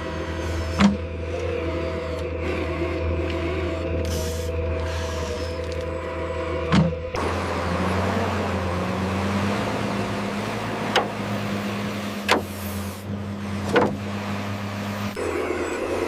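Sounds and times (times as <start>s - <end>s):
small electric motor humming: 0.0s - 6.6s.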